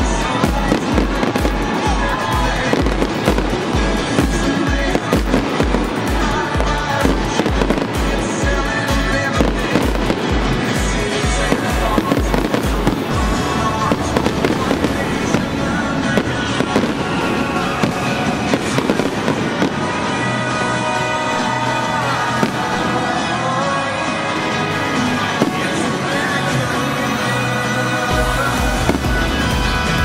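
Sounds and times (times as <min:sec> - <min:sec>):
music with deep bass beat: 0:00.0 - 0:19.8, 0:28.1 - 0:30.0
fireworks bursting and crackling: 0:00.0 - 0:30.0.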